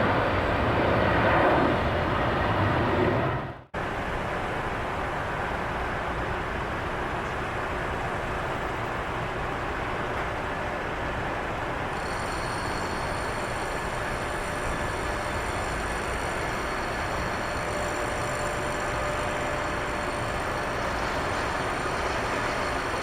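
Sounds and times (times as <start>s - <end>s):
high-pitched turbine whine: 0.0s - 3.7s, 11.9s - 23.0s
jet engines roaring: 0.0s - 7.1s.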